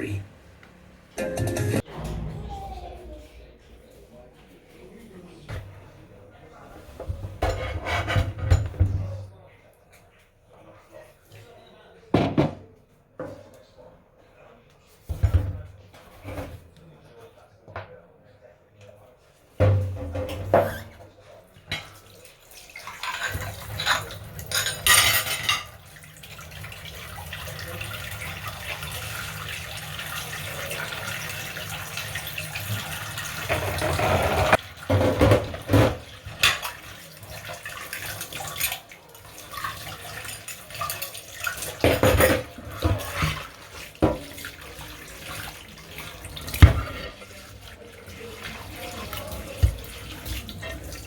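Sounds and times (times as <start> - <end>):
dishes and cutlery clinking: 6.9 - 9.2, 21.7 - 26.0, 33.5 - 47.4.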